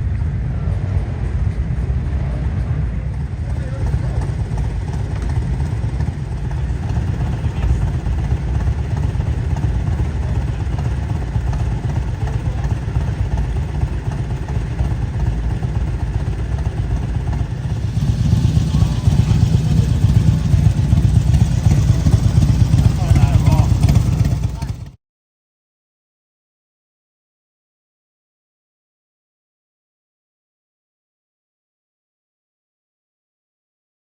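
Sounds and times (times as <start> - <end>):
motorcycle engines rumbling: 0.0 - 25.0.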